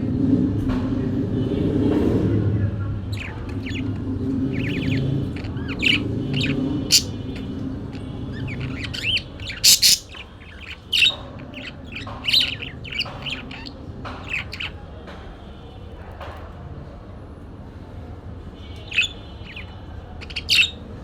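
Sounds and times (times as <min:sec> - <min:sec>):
parakeets chirping and squawking: 0:03.0 - 0:14.8, 0:18.8 - 0:20.9.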